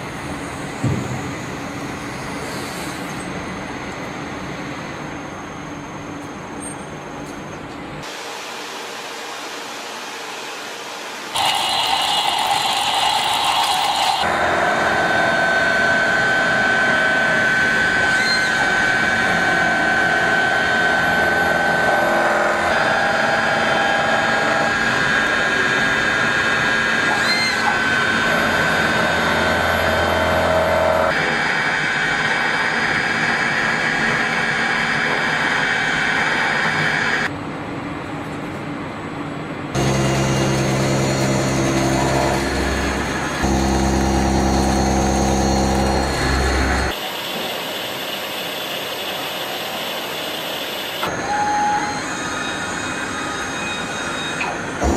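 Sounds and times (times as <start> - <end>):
machine cutting metal whine: 11.3 - 37.3, 39.8 - 54.9.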